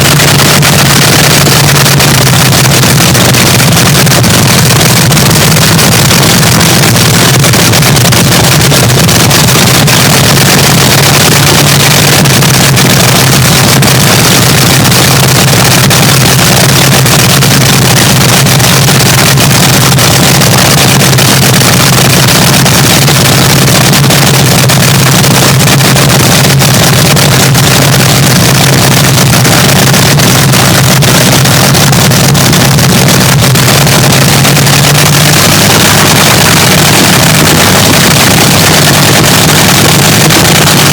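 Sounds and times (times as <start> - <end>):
dragster engine cackling idle: 0.0 - 40.9.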